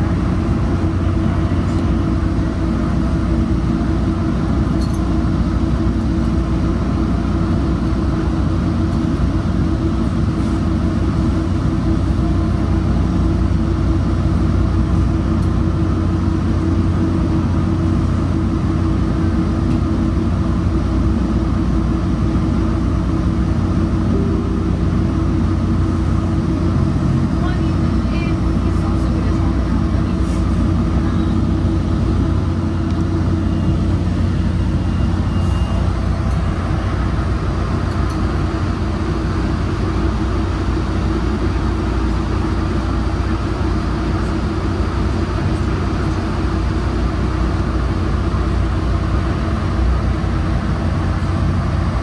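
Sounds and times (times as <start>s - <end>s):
train rumbling on board: 0.0s - 52.0s.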